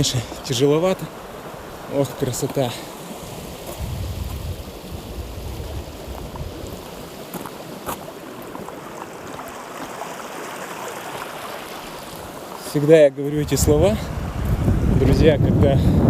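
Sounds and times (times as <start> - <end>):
river flowing: 0.0 - 15.0
wind buffeting microphone: 3.3 - 7.5, 13.3 - 16.0.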